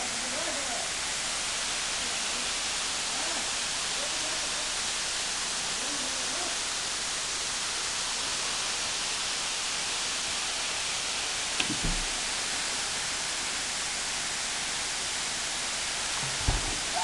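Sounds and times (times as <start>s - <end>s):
waterfall rushing: 0.0s - 17.0s
low thumps: 16.2s - 17.0s.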